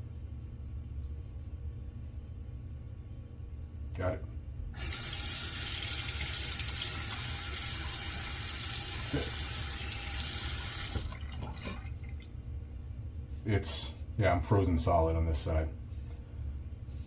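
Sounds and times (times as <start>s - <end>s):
faucet running into sink: 4.8s - 12.2s
small water splashes: 10.9s - 12.4s.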